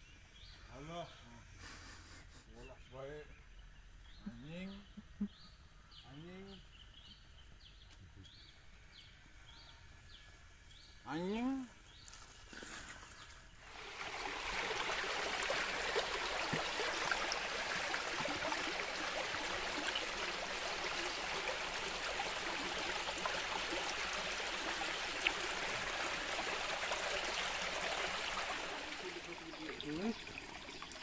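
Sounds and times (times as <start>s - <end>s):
river water flowing and gurgling: 13.7s - 31.0s.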